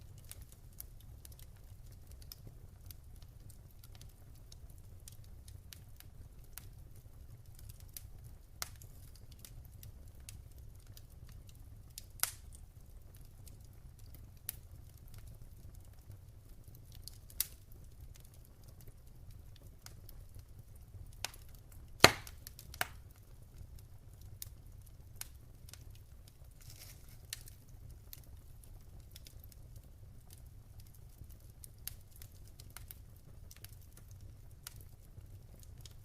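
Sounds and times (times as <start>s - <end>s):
low steady fire rumble: 0.0s - 36.0s
wood fire crackling: 0.0s - 36.0s
loud fire pops: 21.2s - 23.7s.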